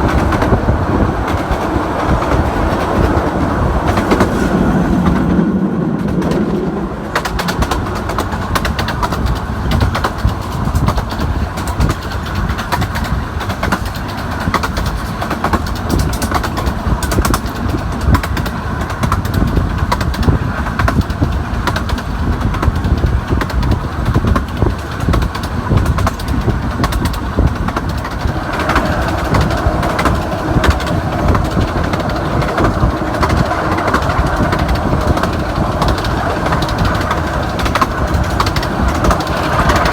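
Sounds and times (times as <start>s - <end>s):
miniature train rumbling: 0.0s - 39.9s
wheels clicking on rails: 0.0s - 39.9s.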